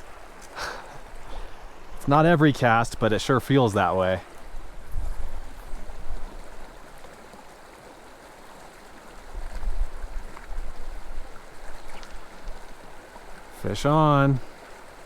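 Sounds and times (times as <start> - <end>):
creek rushing over rocks: 0.0 - 15.0
wind buffeting microphone: 4.5 - 6.6.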